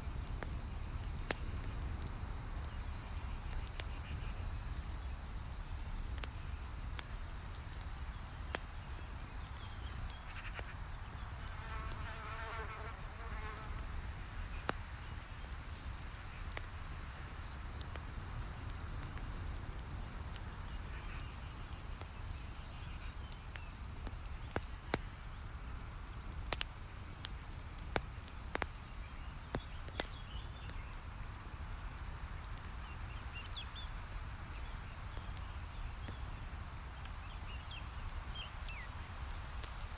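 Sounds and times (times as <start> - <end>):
campfire crackling and popping: 0.0 - 11.6, 13.6 - 39.9
insect buzzing: 10.1 - 14.6.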